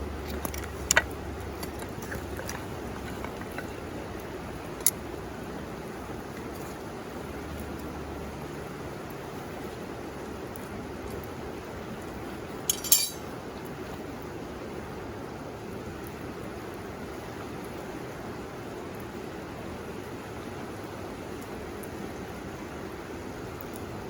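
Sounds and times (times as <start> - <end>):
bright metallic clink: 12.7 - 13.2.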